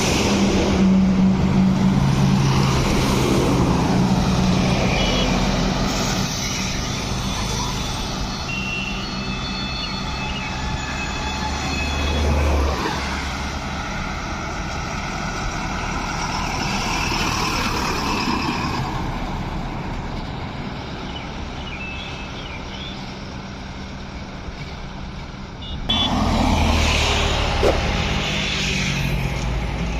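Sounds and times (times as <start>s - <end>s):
truck engines rumbling: 0.0s - 29.9s
vehicle passing: 25.9s - 29.9s.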